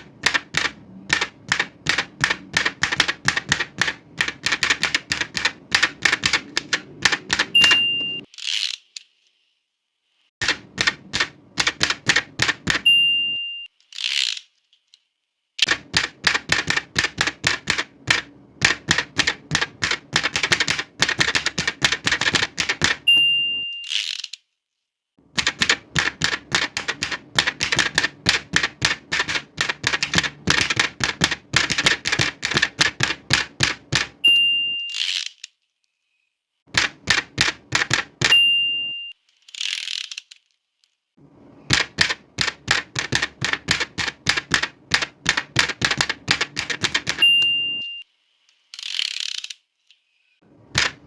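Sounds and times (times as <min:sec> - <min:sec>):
typewriter key strikes: 0:00.0 - 0:08.3, 0:10.4 - 0:12.9, 0:15.6 - 0:23.3, 0:25.4 - 0:34.2, 0:36.7 - 0:38.5, 0:41.7 - 0:47.6, 0:50.8 - 0:51.0
typewriter carriage return swish: 0:00.0 - 0:09.0, 0:10.4 - 0:12.9, 0:13.8 - 0:14.5, 0:15.6 - 0:23.1, 0:23.8 - 0:24.4, 0:25.4 - 0:34.2, 0:34.8 - 0:35.5, 0:36.7 - 0:38.4, 0:39.4 - 0:40.4, 0:41.6 - 0:47.3, 0:50.7 - 0:51.0
typewriter bell ding: 0:07.6 - 0:08.3, 0:12.7 - 0:13.7, 0:23.0 - 0:23.9, 0:34.2 - 0:35.0, 0:38.2 - 0:39.1, 0:47.1 - 0:48.0.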